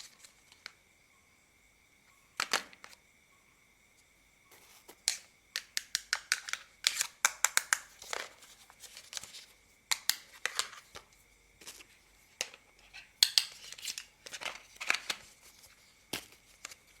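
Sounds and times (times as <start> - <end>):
plastic toy parts clicking: 5.1 - 8.4, 13.2 - 15.2.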